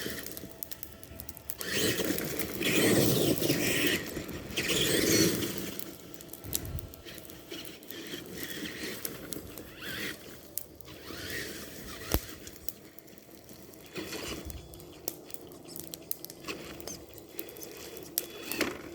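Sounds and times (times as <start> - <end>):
rc truck drivetrain whining: 0.0 - 18.9
tyres squealing: 7.1 - 10.3, 10.9 - 12.5.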